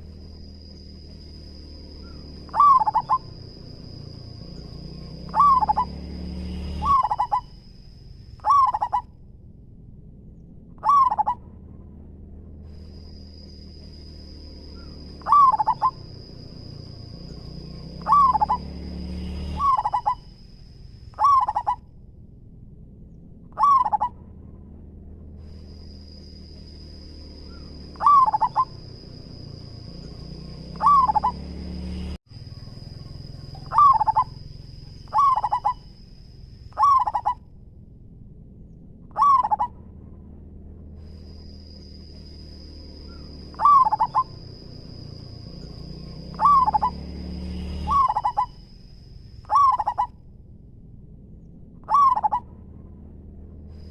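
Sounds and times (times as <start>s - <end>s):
dove cooing: 2.0s - 6.0s, 6.7s - 7.6s, 8.4s - 9.1s, 10.8s - 11.4s, 14.8s - 18.7s, 19.6s - 20.2s, 21.2s - 21.8s, 23.6s - 24.2s, 27.5s - 29.0s, 30.7s - 31.5s, 33.2s - 34.4s, 35.1s - 35.9s, 36.8s - 37.4s, 39.1s - 39.8s, 43.1s - 44.5s, 46.2s - 47.0s, 47.9s - 48.5s, 49.5s - 50.1s, 51.8s - 52.5s.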